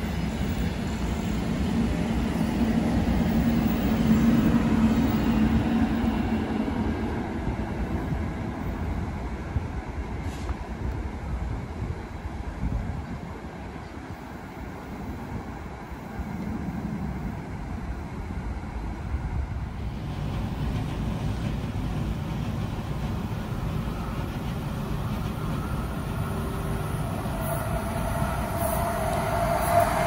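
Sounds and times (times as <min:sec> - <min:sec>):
train rumble and rail noise: 0:00.0 - 0:30.0
steady high tone: 0:23.6 - 0:30.0.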